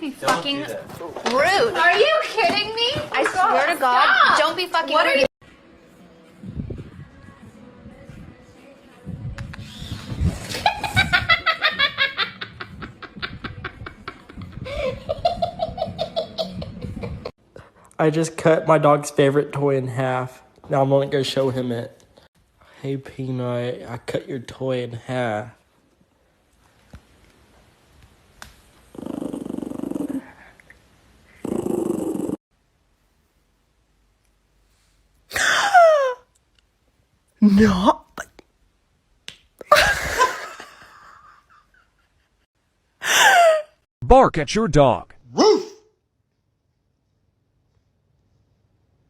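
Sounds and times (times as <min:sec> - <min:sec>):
person laughing hard: 0:10.4 - 0:17.3, 0:39.7 - 0:42.0
dog growling: 0:28.9 - 0:30.4, 0:31.3 - 0:32.4.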